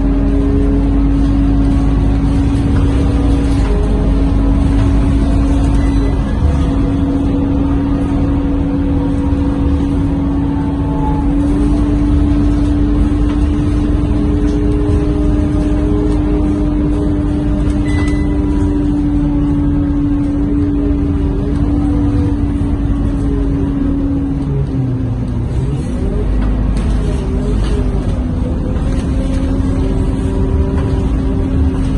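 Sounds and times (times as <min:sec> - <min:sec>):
bus engine whine and rumble: 0:00.0 - 0:31.9.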